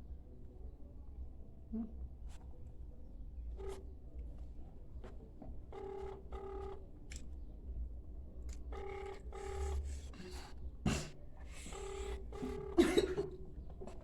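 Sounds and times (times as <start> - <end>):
phone ringback tone: 5.7 - 6.8, 8.7 - 9.8, 11.7 - 12.8.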